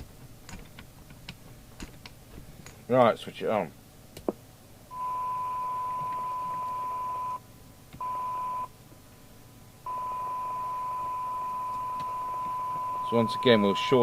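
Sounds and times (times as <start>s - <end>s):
steady test tone: 4.9s - 7.4s, 9.9s - 14.0s.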